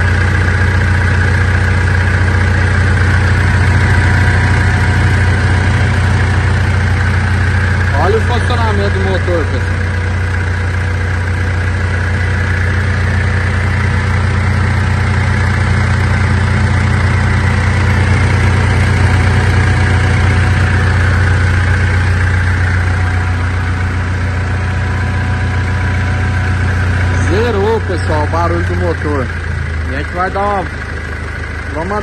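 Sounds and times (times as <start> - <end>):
diesel engine idling: 0.0 - 32.0.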